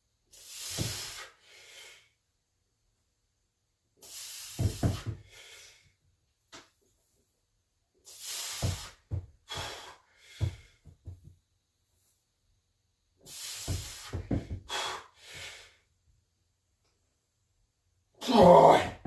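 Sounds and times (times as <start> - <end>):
heavy forceful breathing: 13.3 - 15.9.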